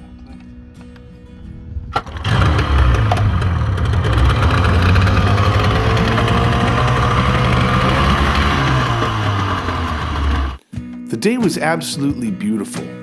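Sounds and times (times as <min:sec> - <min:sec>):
outboard motor running: 0:02.0 - 0:10.6.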